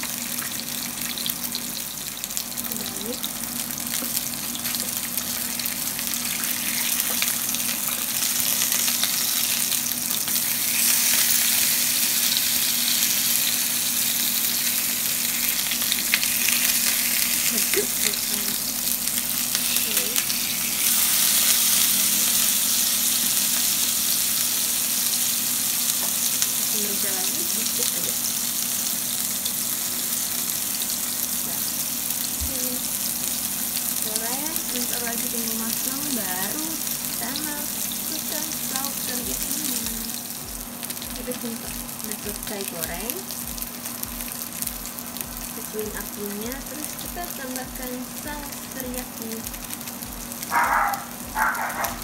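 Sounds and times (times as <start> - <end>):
fish sizzling in a frying pan: 0.0 - 52.0.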